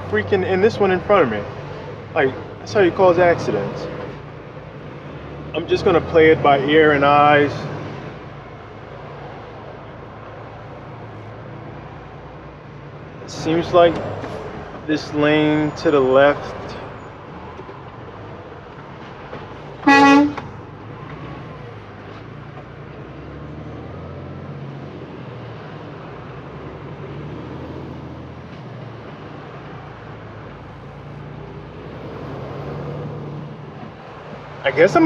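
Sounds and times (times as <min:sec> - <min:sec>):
road noise: 0:00.0 - 0:35.0
truck engine hum: 0:00.0 - 0:35.0
vehicle horn honk: 0:19.8 - 0:20.5.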